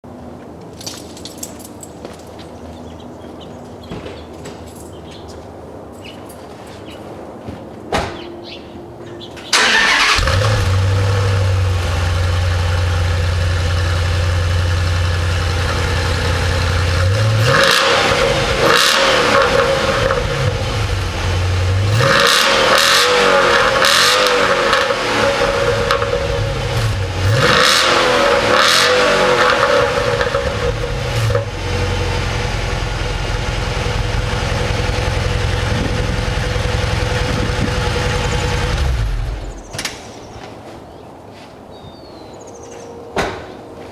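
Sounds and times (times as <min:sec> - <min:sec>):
car engine starting: 0:09.5 - 0:39.7
car engine idling and revving: 0:09.6 - 0:39.7.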